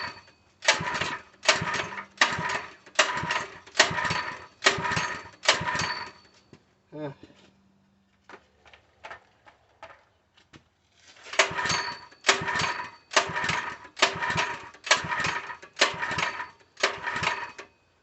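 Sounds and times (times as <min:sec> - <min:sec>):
small engine turning over: 0:00.0 - 0:06.3, 0:11.0 - 0:17.7
recoil starter whirring: 0:00.0 - 0:06.4, 0:11.2 - 0:18.0.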